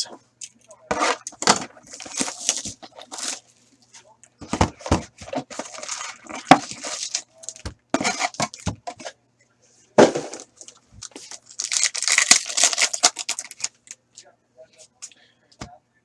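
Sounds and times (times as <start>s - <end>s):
plastic and foil wrapping crinkling: 1.0s - 3.8s, 4.6s - 9.0s, 10.4s - 14.0s.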